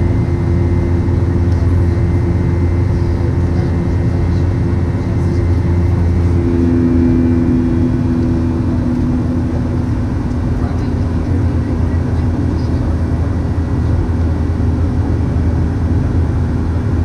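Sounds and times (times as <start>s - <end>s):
aircraft cabin engine drone: 0.0s - 17.0s
steady hum tones: 0.0s - 17.0s.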